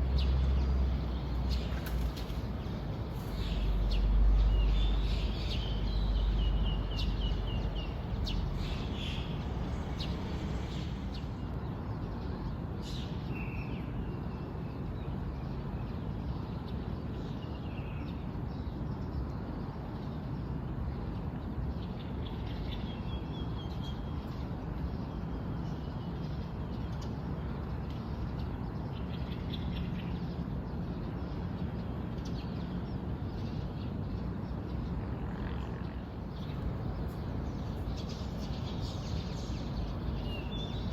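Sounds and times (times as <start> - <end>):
birds chirping and calling: 0.0 - 11.4, 36.3 - 40.9
steady low background noise: 0.0 - 40.9.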